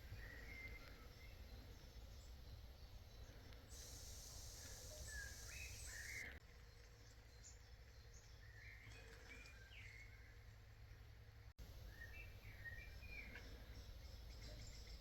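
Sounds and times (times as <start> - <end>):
small birds chirping: 0.0 - 10.1
steady high hiss: 3.7 - 6.3.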